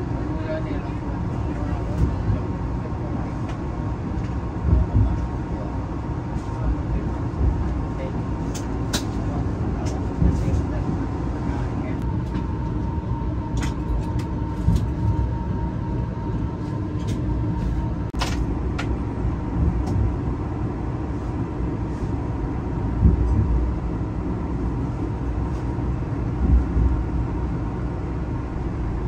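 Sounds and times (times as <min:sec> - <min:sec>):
train interior rumble: 0:00.0 - 0:29.0.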